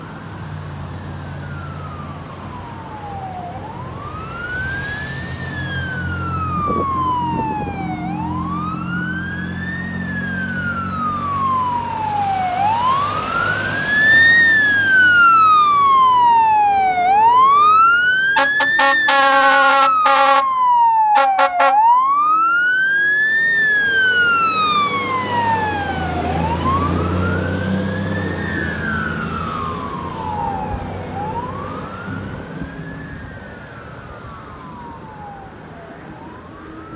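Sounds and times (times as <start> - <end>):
truck engine rumbling: 0.0 - 20.6
fire engine siren wailing: 0.0 - 36.9
short horn blasts: 18.4 - 20.5, 21.2 - 21.8.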